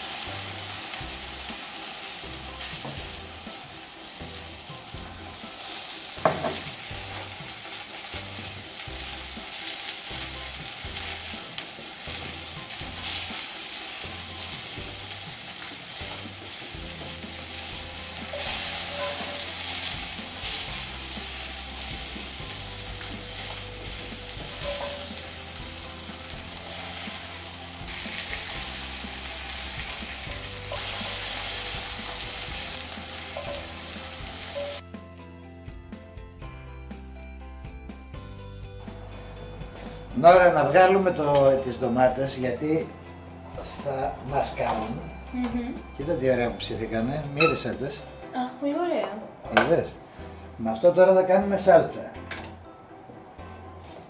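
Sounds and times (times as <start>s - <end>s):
tomatoes sizzling in a skillet: 0.0s - 34.8s.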